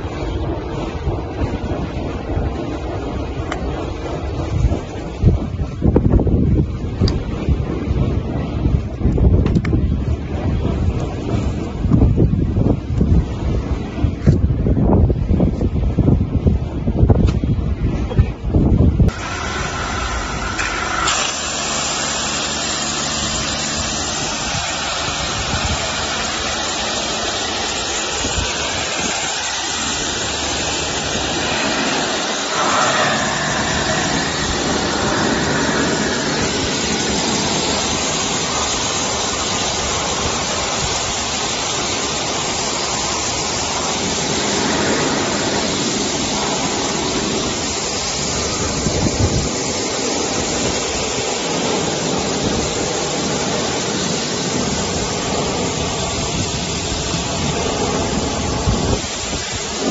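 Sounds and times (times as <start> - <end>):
pressure washer spraying water: 19.1 - 59.9.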